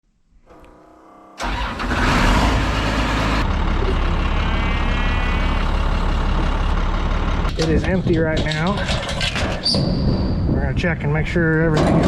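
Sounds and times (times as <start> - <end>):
large engine cranking and running: 1.4 - 9.6.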